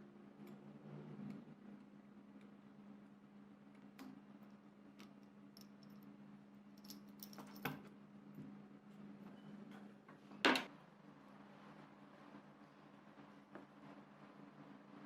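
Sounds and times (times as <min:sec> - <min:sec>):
metallic clinks of small parts: 0:06.8 - 0:07.8.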